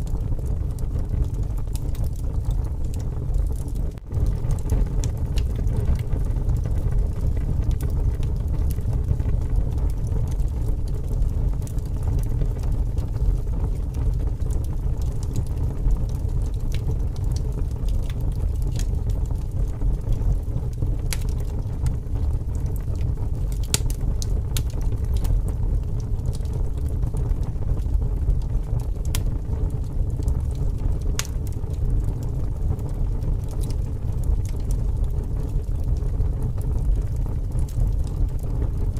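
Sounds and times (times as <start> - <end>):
strong wind rumbling: 0.0 - 17.6
wood fire crackling: 0.0 - 38.9.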